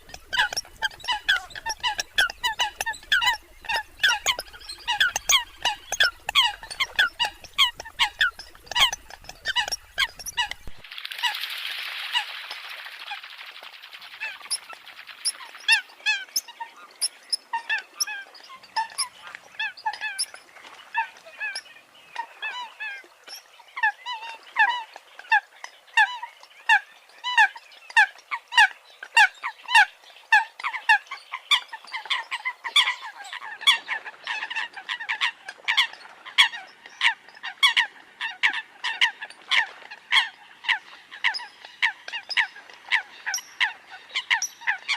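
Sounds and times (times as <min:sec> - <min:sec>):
coots honking calls: 0:00.0 - 0:10.8.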